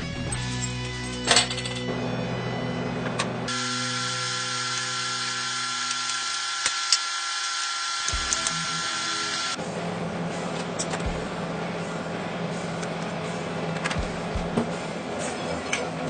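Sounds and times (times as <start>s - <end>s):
power tool whining: 1.9s - 9.6s.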